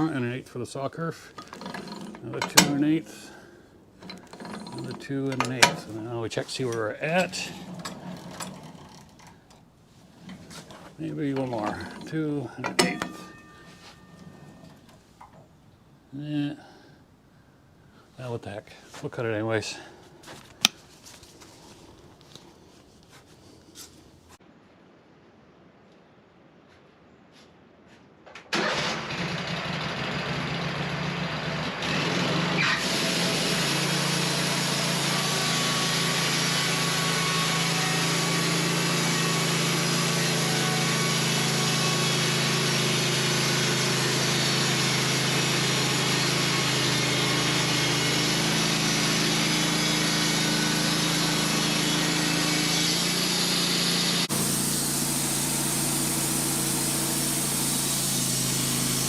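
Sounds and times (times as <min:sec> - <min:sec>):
band saw cutting log: 0:00.0 - 0:00.4, 0:01.0 - 0:15.5, 0:30.6 - 0:59.0
sawmill engine running: 0:00.0 - 0:15.4, 0:28.6 - 0:59.0.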